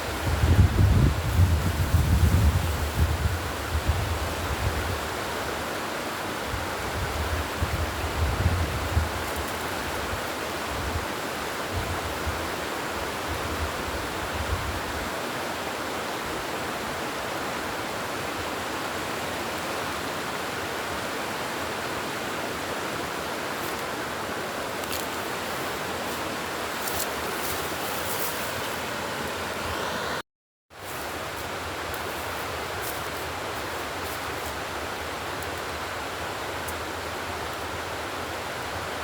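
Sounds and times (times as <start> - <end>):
wind buffeting microphone: 0.0 - 5.1, 6.6 - 11.1.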